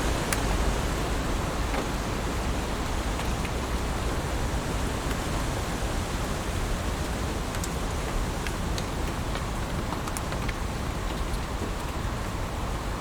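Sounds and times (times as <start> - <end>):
sharp raindrop ticks: 7.0 - 12.0.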